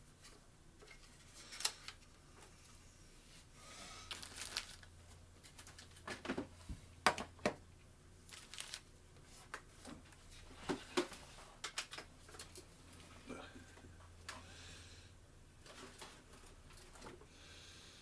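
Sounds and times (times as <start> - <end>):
packaging rustling and crinkling: 4.1 - 6.5, 8.3 - 9.6.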